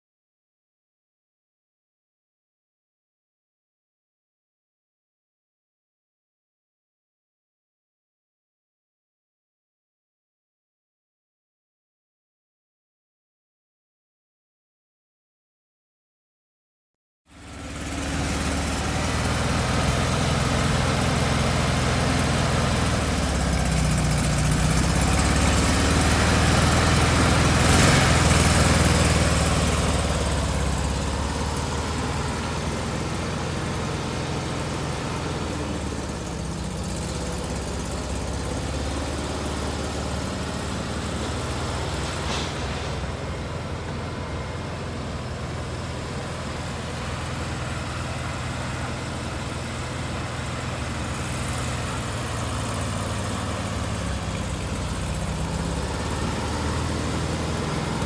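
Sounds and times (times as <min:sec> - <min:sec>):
car engine running: 0:17.4 - 0:58.0.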